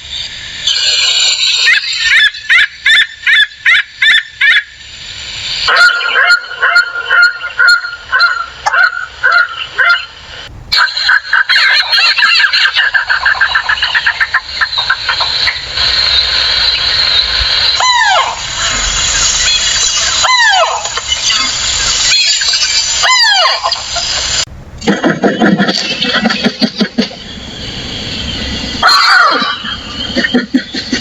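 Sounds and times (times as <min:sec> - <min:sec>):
birds calling rapidly: 0:05.7 - 0:10.2, 0:27.2 - 0:31.0
birds chattering: 0:10.8 - 0:18.3, 0:25.0 - 0:31.0.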